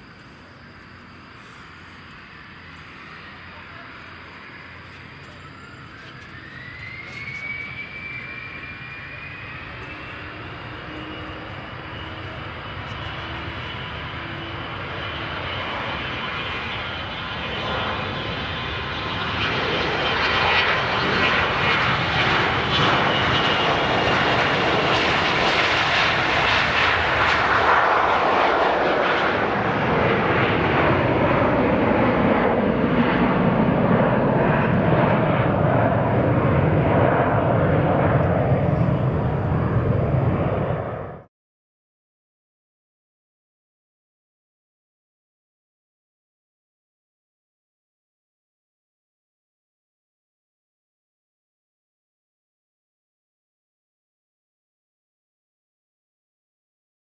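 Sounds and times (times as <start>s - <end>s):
jet engine roar on takeoff: 0.0s - 41.3s.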